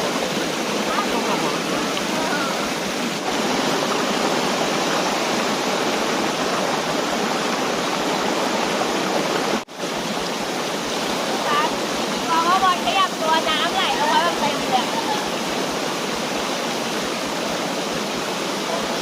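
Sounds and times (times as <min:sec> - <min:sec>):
waterfall rushing over rocks: 0:00.0 - 0:19.0.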